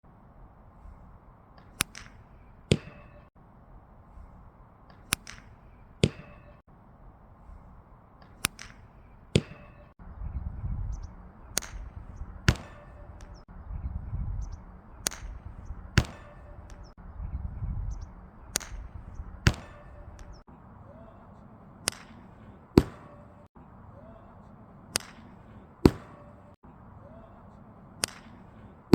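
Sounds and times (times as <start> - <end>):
golf club striking ball: 1.6 - 3.3, 4.9 - 6.6, 8.2 - 9.9, 11.0 - 13.4, 14.5 - 16.9, 18.0 - 20.4.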